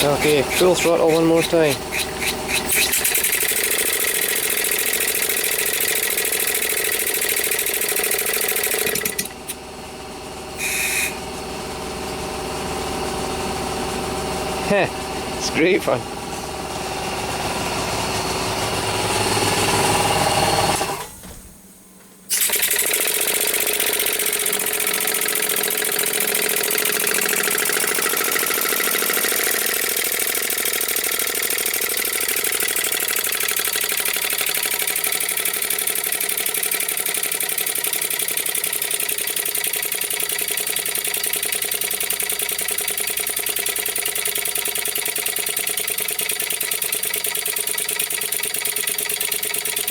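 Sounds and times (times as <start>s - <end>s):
fast-running mechanical beat: 0.0s - 10.3s, 22.3s - 49.9s
air-powered engine exhaust puffing: 10.5s - 15.6s.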